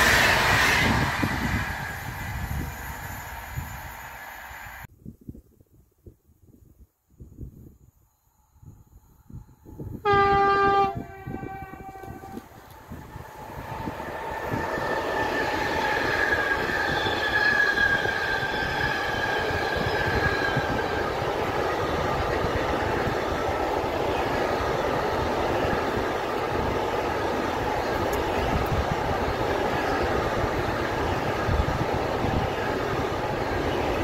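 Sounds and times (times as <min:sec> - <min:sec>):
high ringing from train wheels: 0:00.0 - 0:04.9, 0:08.1 - 0:34.0
train wheels rumbling on rail: 0:00.0 - 0:04.9, 0:09.2 - 0:34.0
locomotive horn blast: 0:10.0 - 0:12.5.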